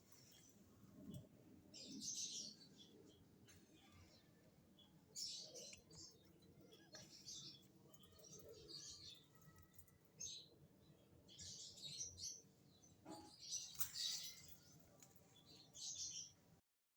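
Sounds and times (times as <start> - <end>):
lovebirds chirping: 0.0 - 16.4.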